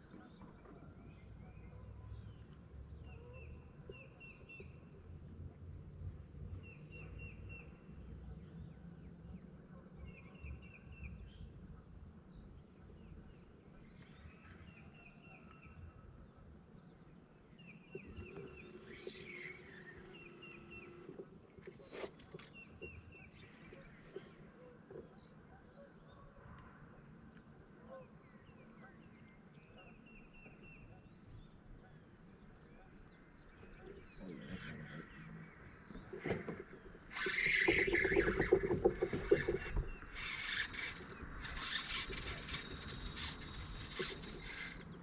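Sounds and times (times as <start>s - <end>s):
rumble of wind and water: 0.0s - 45.0s
bird chirping: 37.1s - 45.0s.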